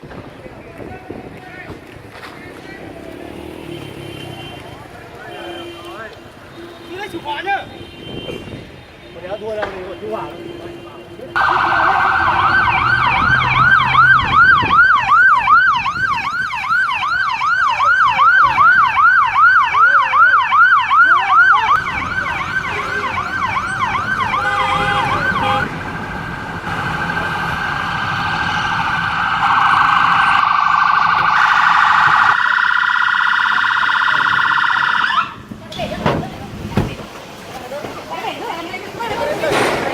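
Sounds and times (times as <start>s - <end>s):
emergency vehicle siren: 11.4s - 35.6s.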